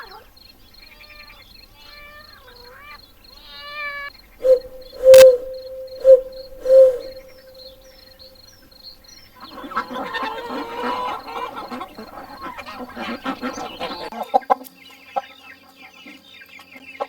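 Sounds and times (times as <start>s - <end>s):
faint high chirp: 4.4s - 7.8s.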